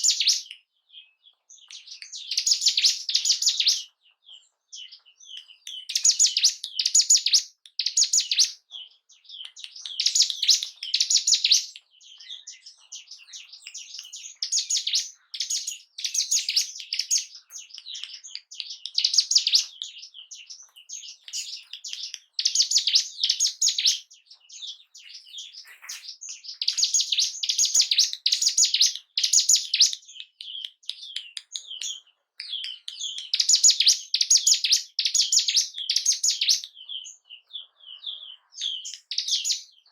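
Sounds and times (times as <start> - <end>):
soft bird chirping: 0.0 - 39.9
bird trilling: 1.7 - 3.9, 4.8 - 8.6, 9.3 - 30.6.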